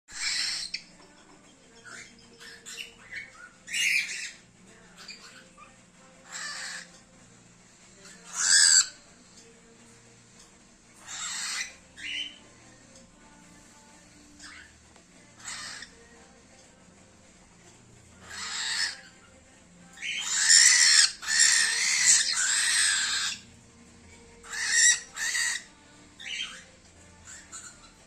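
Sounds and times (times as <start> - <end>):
cockatiel harsh raspy calls: 0.1 - 0.9, 1.9 - 4.4, 5.0 - 7.0, 8.0 - 9.0, 11.0 - 12.4, 14.4 - 14.7, 15.3 - 16.0, 18.2 - 19.2, 20.0 - 23.5, 24.4 - 28.0.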